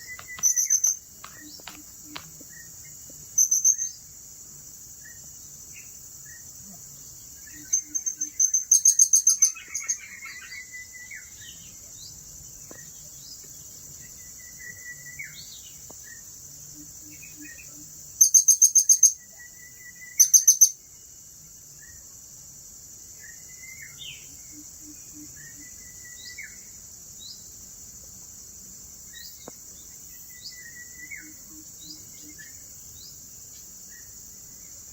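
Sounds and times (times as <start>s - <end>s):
bird chirps: 0.0s - 4.1s, 7.2s - 21.1s
high insect drone: 0.0s - 34.9s.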